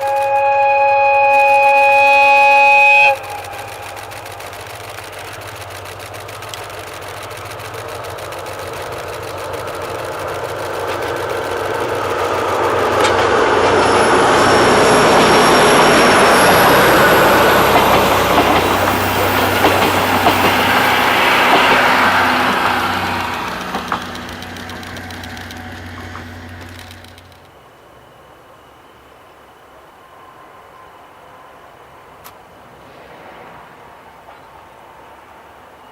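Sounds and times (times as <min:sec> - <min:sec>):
high-pitched squeals: 0:00.0 - 0:28.1
diesel locomotive engine hum: 0:00.0 - 0:35.9
train wheel and rail noise: 0:00.0 - 0:35.9.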